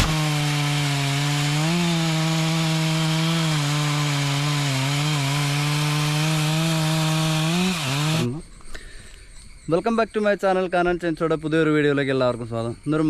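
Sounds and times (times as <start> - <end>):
chainsaw cutting wood: 0.0 - 8.3.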